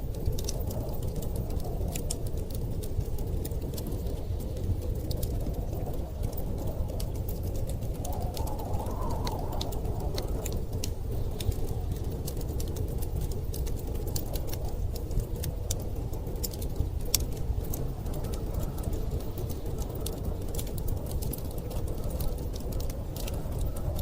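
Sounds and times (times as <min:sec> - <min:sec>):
blizzard wind howling: 0:00.0 - 0:24.0
fireplace crackling: 0:00.0 - 0:24.0.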